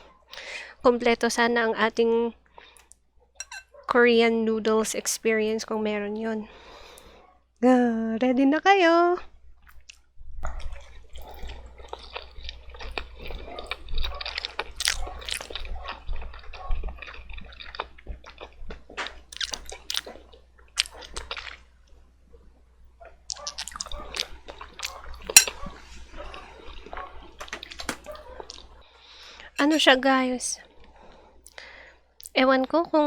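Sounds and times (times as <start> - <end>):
wet squishy eating sounds: 9.6 - 29.9
utensils clicking against bowl: 25.3 - 25.6, 29.6 - 29.9.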